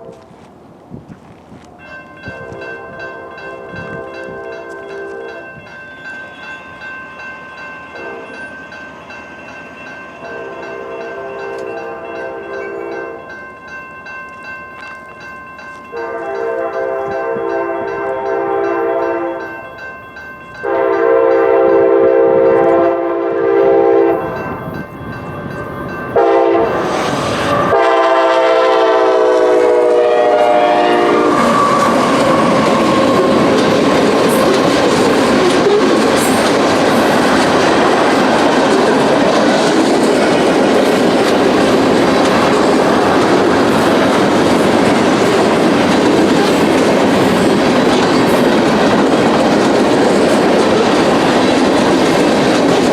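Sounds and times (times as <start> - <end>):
train air horn blasts: 0.0 - 0.4, 2.3 - 5.5, 8.0 - 8.4, 10.2 - 13.2, 15.9 - 19.5, 20.6 - 24.4, 26.2 - 33.6
train wheels rumbling on rails: 0.0 - 52.9.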